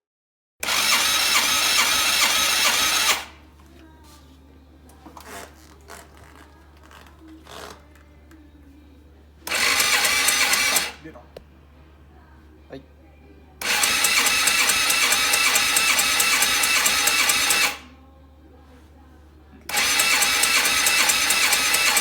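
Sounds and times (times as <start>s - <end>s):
motorcycle starter cranking: 0.6s - 3.4s, 9.5s - 11.1s, 13.6s - 17.9s, 19.7s - 22.0s.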